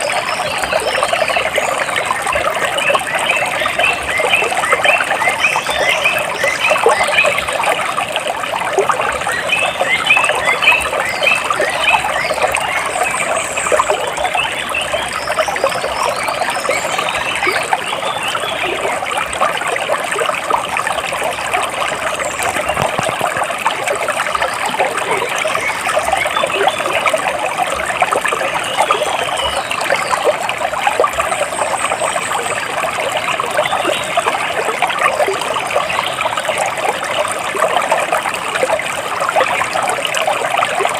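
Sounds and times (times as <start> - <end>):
water splashing and trickling: 0.0 - 40.9
birds chirping: 21.2 - 27.4.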